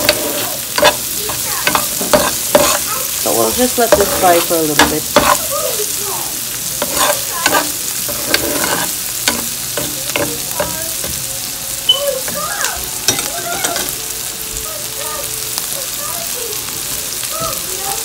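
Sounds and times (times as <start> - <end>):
spoon scraping a pot: 0.0 - 5.5, 6.8 - 11.2
food sizzling in hot oil: 0.0 - 18.0.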